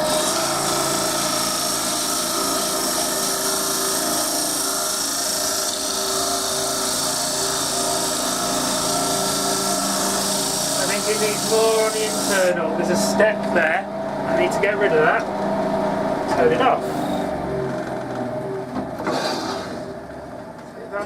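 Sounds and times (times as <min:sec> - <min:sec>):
wood lathe motor humming: 0:00.0 - 0:18.7
sandpaper hissing on spinning wood: 0:00.1 - 0:12.6.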